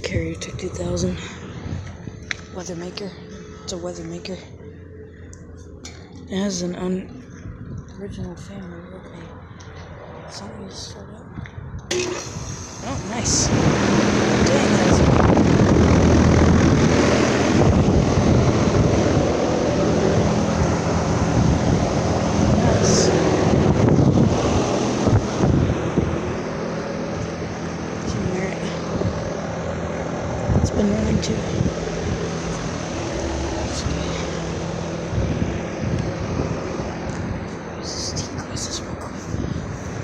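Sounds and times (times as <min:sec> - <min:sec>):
air conditioner condenser running: 0:11.9 - 0:40.0
compressor hum: 0:11.9 - 0:40.0.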